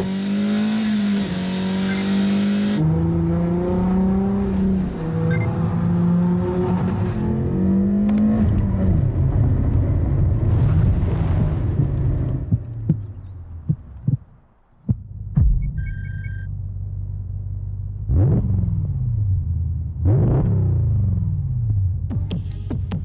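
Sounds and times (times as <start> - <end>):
car engine running at speed: 0.0 - 23.0.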